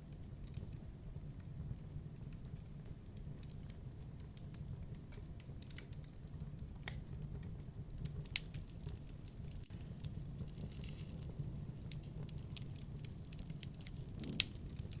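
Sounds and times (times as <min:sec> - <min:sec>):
low fire rumble: 0:08.2 - 0:15.0
wood crackling and popping: 0:08.2 - 0:15.0.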